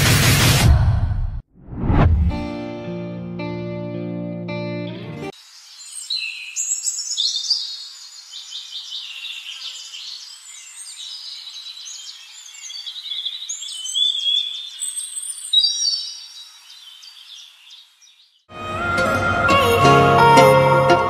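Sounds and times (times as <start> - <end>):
small songbirds chirping: 5.4 - 18.5.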